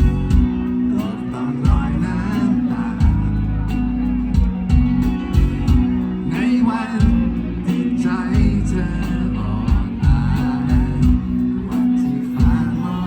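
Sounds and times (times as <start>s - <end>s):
rock band music: 0.0s - 13.0s
man singing long wavering notes: 0.7s - 4.3s, 6.2s - 13.0s.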